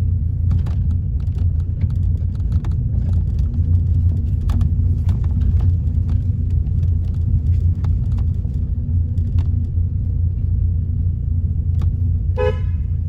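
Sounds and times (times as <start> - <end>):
car engine and road rumble: 0.0 - 13.0
small clicks and knocks: 0.4 - 9.8.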